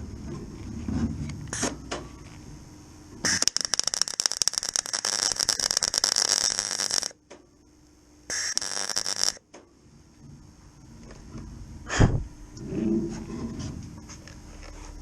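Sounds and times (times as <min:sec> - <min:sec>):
welder arc crackling: 0:03.2 - 0:07.2, 0:08.3 - 0:09.5.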